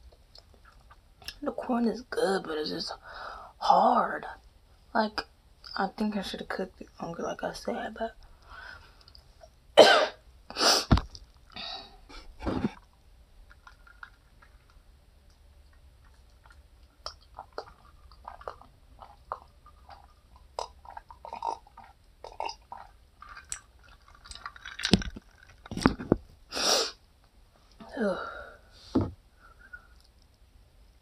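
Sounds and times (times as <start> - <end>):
chewing with wet smacks: 0.2 - 1.4, 12.8 - 25.8.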